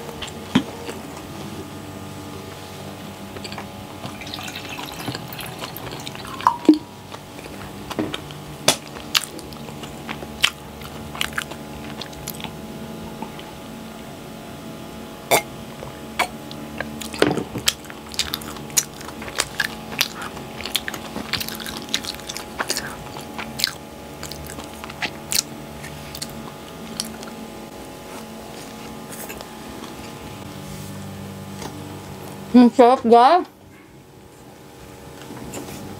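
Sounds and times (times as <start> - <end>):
chewing and mouth smacks: 3.4 - 12.6, 16.5 - 27.4
water poured into a glass: 4.2 - 6.8.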